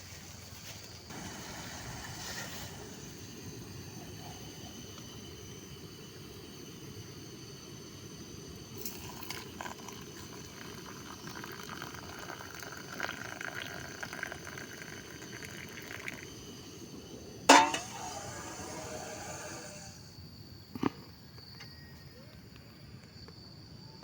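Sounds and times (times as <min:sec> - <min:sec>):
water trickling: 0:08.8 - 0:16.8.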